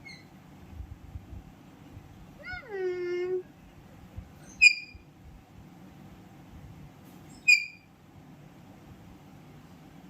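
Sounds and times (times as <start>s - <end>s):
low background rumble: 0.0s - 7.0s.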